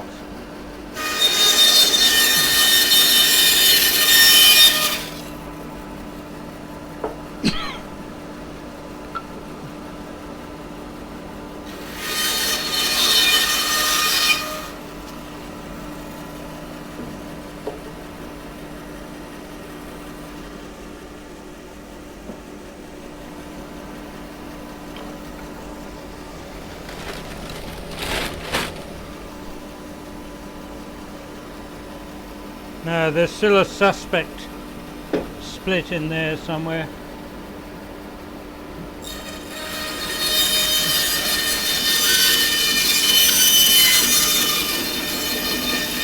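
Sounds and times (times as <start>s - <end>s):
power saw cutting wood: 0.9s - 5.5s, 11.6s - 15.1s, 24.8s - 29.8s, 39.0s - 46.0s.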